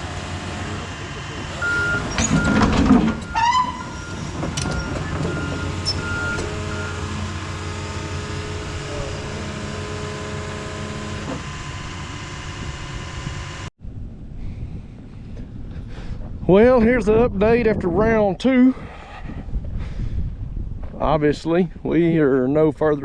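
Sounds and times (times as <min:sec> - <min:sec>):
heavy machine engine running: 0:00.0 - 0:13.7
backup alarm beeping: 0:01.6 - 0:07.2.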